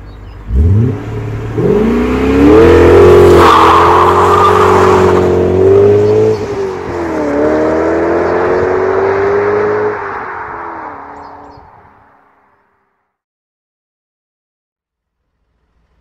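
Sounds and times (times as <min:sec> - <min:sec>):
car engine revving: 0:00.4 - 0:11.0.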